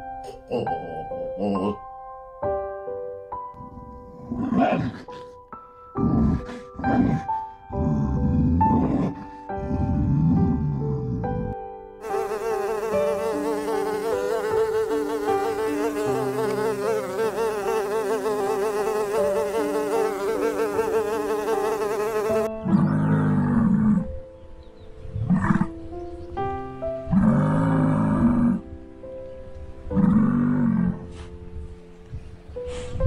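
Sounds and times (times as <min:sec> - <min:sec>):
soft background music: 0:00.0 - 0:33.0
bees buzzing: 0:12.0 - 0:22.5
deep animal call: 0:21.6 - 0:24.1.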